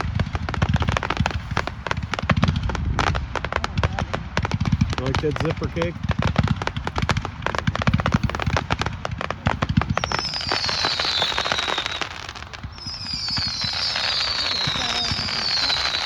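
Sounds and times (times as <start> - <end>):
firework pops and crackles: 0.0 - 16.0
falling whistling tones: 6.7 - 16.0.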